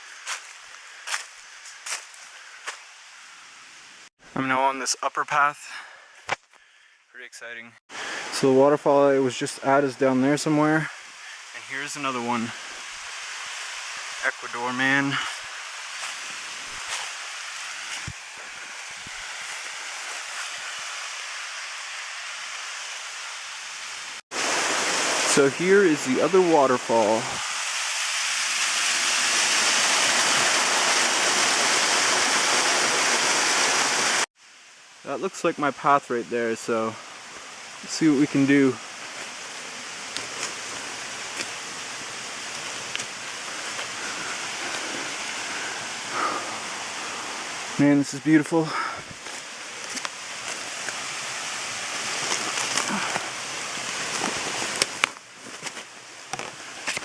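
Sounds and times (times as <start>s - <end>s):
distant waterfall rushing: 7.9s - 57.0s.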